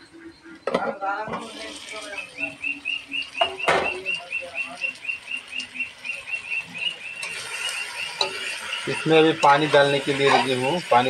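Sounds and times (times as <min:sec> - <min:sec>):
spoon stirring in metal pan: 0:07.2 - 0:10.9.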